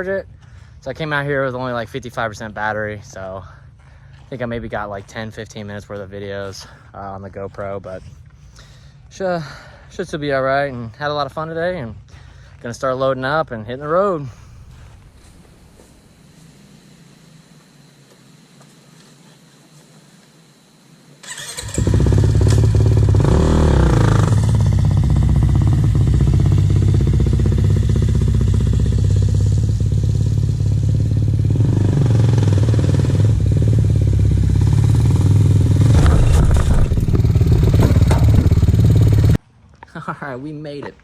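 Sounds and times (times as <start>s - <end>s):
dirt bike engine revving: 21.2s - 39.4s.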